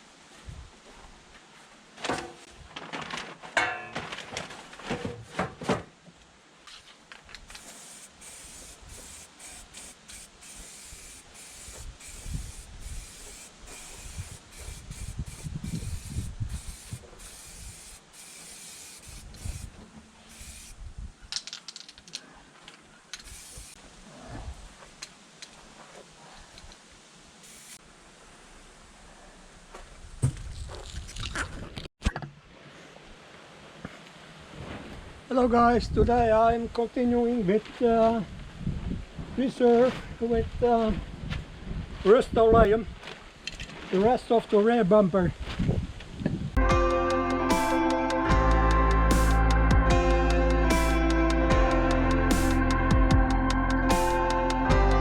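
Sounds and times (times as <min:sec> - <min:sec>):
aerosol spray can hissing: 0:07.5 - 0:20.8, 0:23.2 - 0:23.8, 0:27.4 - 0:27.8.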